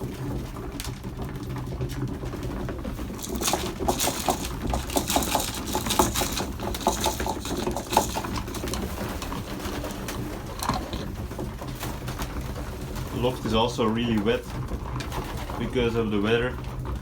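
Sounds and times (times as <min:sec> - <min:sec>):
quick irregular clicks and taps: 0:03.1 - 0:11.1.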